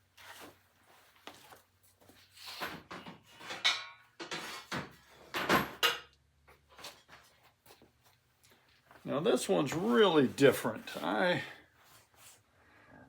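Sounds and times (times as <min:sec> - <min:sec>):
metal parts clunking and scraping: 0:02.5 - 0:06.1.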